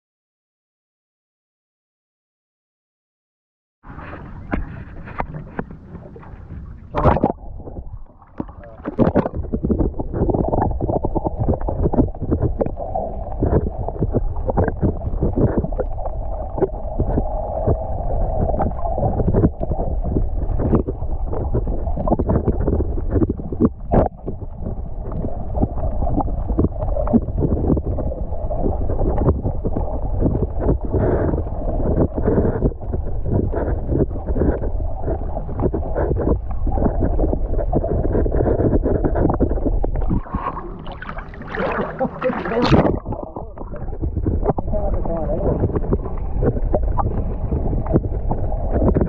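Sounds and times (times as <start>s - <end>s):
water noise: 3.8s - 49.0s
boat knocks and thumps: 3.9s - 10.1s
wind buffeting microphone: 42.2s - 49.0s.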